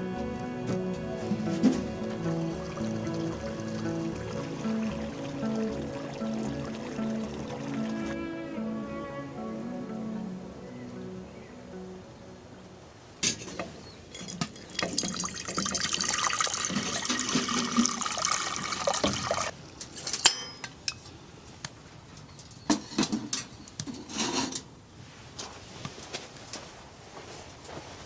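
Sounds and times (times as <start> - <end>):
water pouring into a container: 1.3 - 8.2, 14.4 - 19.5.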